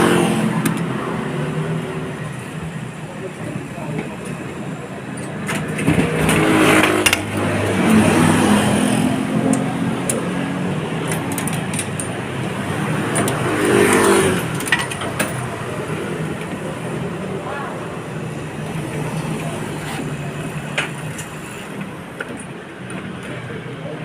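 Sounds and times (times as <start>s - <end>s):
excavator diesel engine revving: 4.4s - 22.2s.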